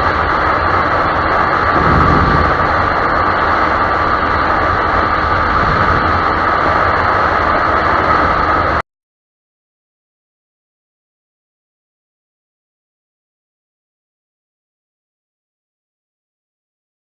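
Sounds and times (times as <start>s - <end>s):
motorcycle engine: 0.0s - 8.8s
wind noise: 0.0s - 8.8s.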